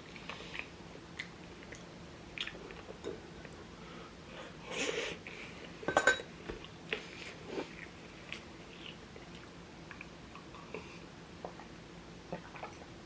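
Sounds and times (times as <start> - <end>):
person chewing food: 0.0 - 3.6, 6.6 - 11.7.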